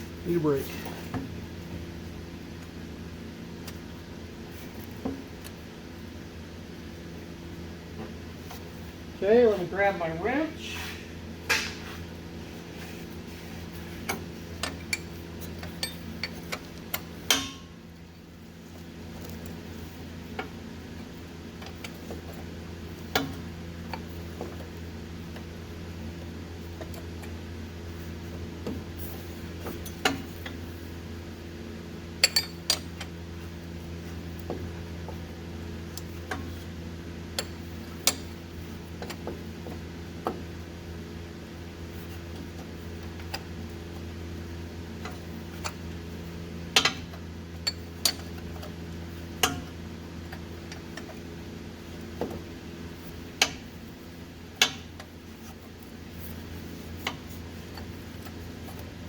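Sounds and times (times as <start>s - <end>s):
steady low hum: 0.0s - 59.0s
wrench clinking on metal: 14.6s - 17.7s, 32.2s - 33.1s.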